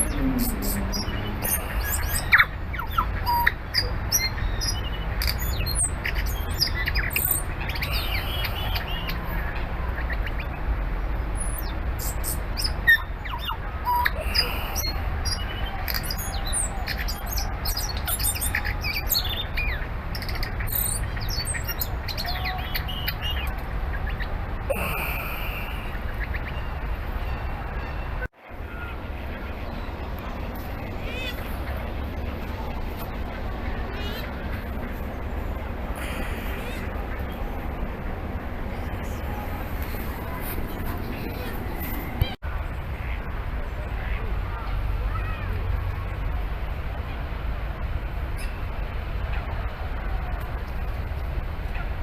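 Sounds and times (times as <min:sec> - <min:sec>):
bird singing: 0:00.0 - 0:09.3, 0:11.4 - 0:28.2.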